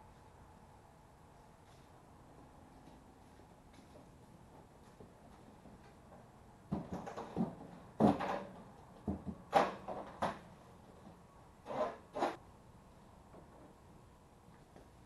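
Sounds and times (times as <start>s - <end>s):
tools knocking and scraping: 6.7s - 10.4s.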